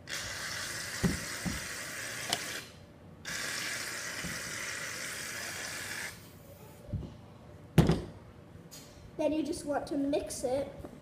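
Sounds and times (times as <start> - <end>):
aerosol can spraying: 3.3 - 6.2.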